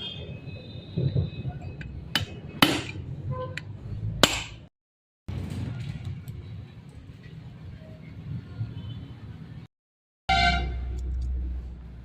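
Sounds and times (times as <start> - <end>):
workshop background noise: 0.0 - 4.7, 5.3 - 9.7.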